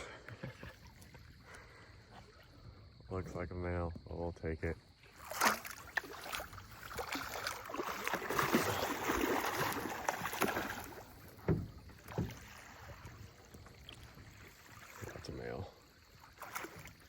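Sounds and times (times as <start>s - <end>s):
water splashing against boat: 0.0s - 17.0s
sharp knocks against boat: 10.2s - 12.5s.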